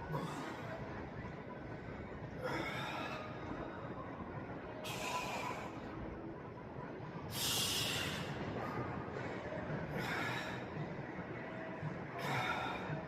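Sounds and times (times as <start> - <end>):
heavy breathing from exertion: 9.9 - 10.9, 12.2 - 13.0.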